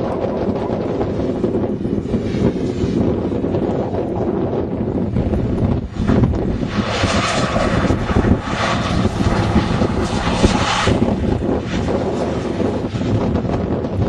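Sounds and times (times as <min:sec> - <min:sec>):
car engine under steady throttle: 0:00.0 - 0:14.0
hissing rush: 0:05.8 - 0:13.2.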